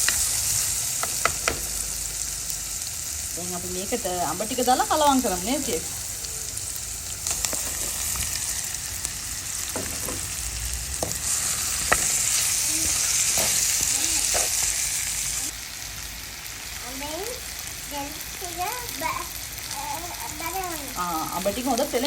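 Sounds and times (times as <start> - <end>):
fruit sizzling in hot oil: 0.0 - 22.0
spoon scraping a pan: 11.0 - 14.8.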